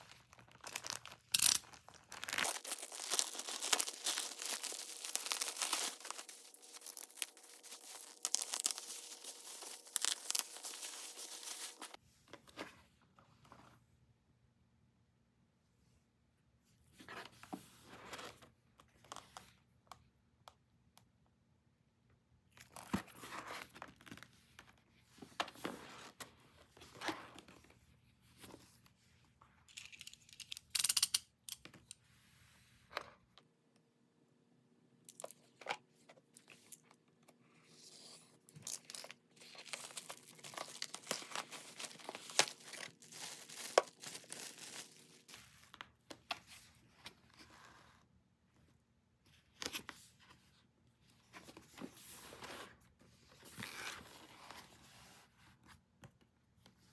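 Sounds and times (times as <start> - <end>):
packaging tearing and crinkling: 0.0 - 12.0, 38.6 - 45.3.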